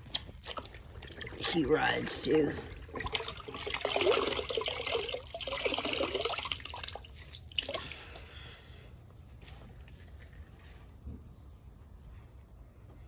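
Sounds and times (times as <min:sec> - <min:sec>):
water splashing and trickling: 0:00.0 - 0:08.7.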